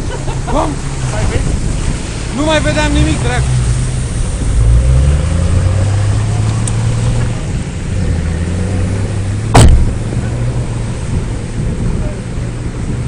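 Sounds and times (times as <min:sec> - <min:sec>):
loud thump: 0:09.5 - 0:10.3.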